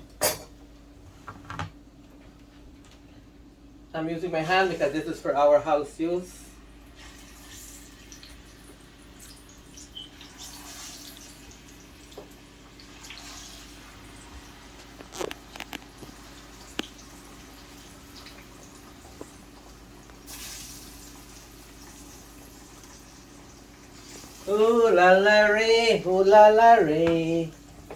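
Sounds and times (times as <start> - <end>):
kitchen clicks and knocks: 0.1 - 0.6
faint sizzle of frying in oil: 4.4 - 26.1.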